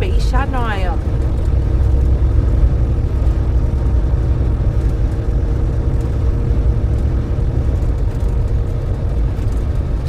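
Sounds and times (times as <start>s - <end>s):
faint hum: 0.0s - 10.0s
truck engine rumble inside cab: 0.0s - 10.0s.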